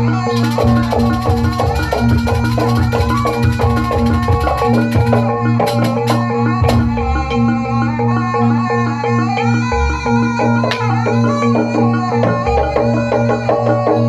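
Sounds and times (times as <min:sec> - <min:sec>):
rapid high clashing rhythm: 0:00.0 - 0:07.6
gamelan ensemble playing: 0:00.0 - 0:14.0
drumming: 0:00.3 - 0:07.0.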